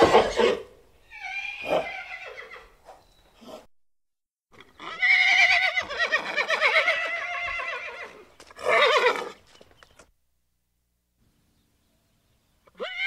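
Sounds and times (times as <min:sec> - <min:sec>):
horse whinnying: 0:00.0 - 0:02.8, 0:04.6 - 0:09.4, 0:12.7 - 0:13.0.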